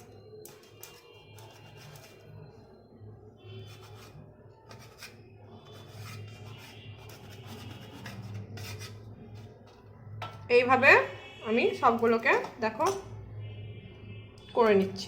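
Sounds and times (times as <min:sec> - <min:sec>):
knife scraping bread: 0:00.1 - 0:02.5, 0:03.6 - 0:09.9.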